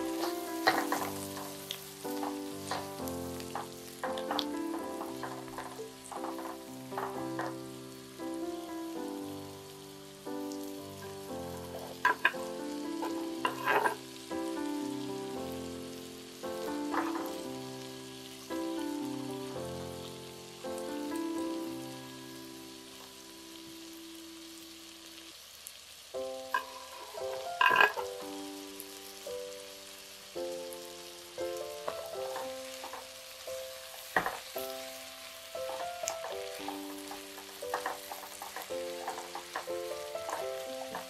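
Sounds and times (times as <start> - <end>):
wooden spatula clacking: 0.0 - 7.8, 11.6 - 14.0, 26.5 - 28.4, 31.8 - 41.0
soft background music: 0.0 - 25.2, 26.2 - 41.0
food sizzling in a pot: 0.0 - 41.0.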